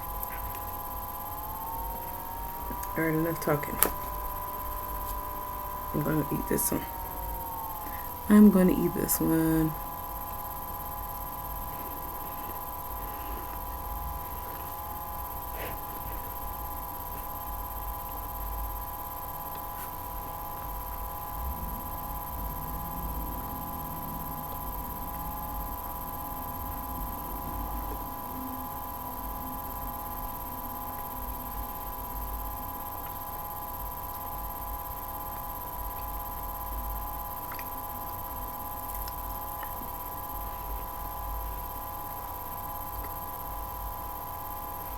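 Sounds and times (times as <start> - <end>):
electrical hum: 0.0 - 44.9
faint clicks: 37.4 - 38.2.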